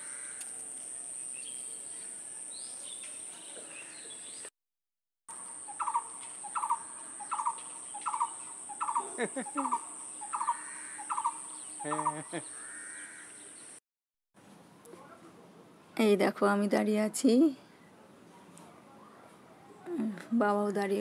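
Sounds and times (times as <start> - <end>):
bird calling: 5.4 - 13.8.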